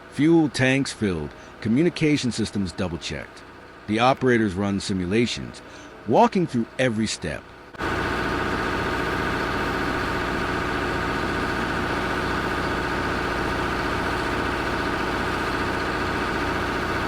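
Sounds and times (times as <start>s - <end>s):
large vehicle engine running: 7.7s - 17.0s.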